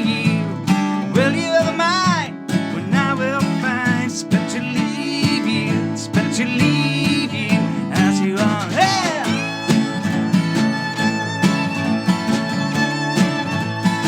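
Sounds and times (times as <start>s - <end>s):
acoustic guitar strumming: 0.0s - 14.0s
sliding lead melody: 9.4s - 14.0s.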